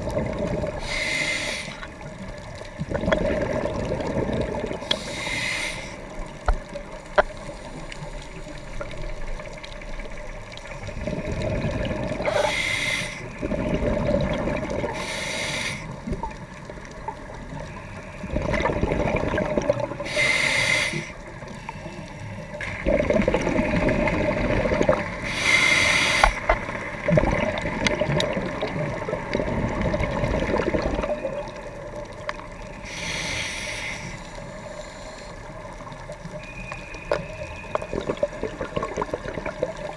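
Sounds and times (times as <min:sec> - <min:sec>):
exhaled bubbles burbling: 0:00.0 - 0:00.9, 0:01.8 - 0:05.0, 0:06.1 - 0:12.6, 0:13.2 - 0:15.0, 0:15.9 - 0:20.1, 0:22.6 - 0:25.3, 0:26.2 - 0:32.7, 0:35.8 - 0:39.9
regulator air hiss: 0:00.8 - 0:01.9, 0:04.9 - 0:06.1, 0:12.3 - 0:13.3, 0:14.9 - 0:16.0, 0:20.0 - 0:22.4, 0:25.2 - 0:26.5, 0:32.7 - 0:35.4.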